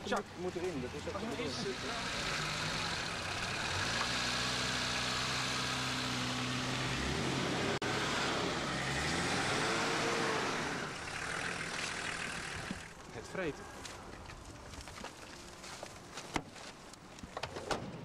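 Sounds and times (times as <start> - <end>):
car engine running: 10.8 - 12.9.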